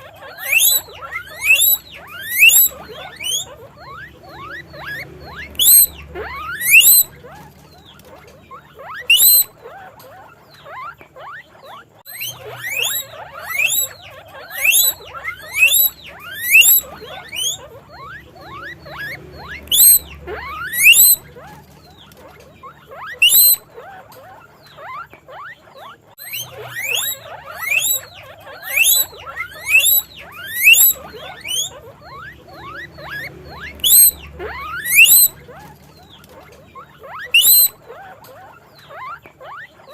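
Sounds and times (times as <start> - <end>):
guinea pig wheeking: 0.0 - 39.9.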